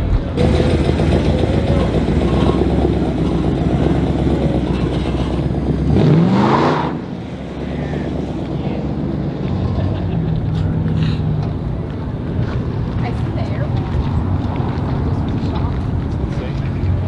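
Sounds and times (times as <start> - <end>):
car engine revving: 0.0 - 8.3
car engine rumble: 0.0 - 17.0.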